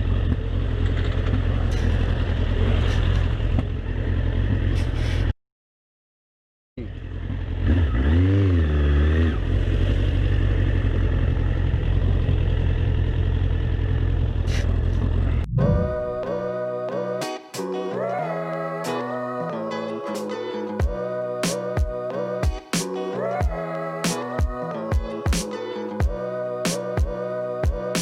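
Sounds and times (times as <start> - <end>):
vehicle engine and road noise: 0.0 - 5.3, 6.8 - 16.1.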